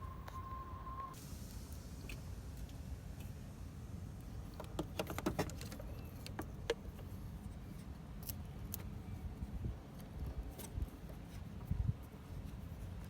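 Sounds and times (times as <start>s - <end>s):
steady low rumble: 1.1s - 4.6s.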